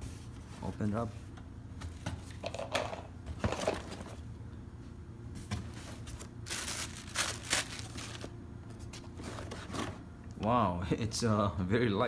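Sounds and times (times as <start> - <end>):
cardboard packaging rustling: 5.5 - 10.0.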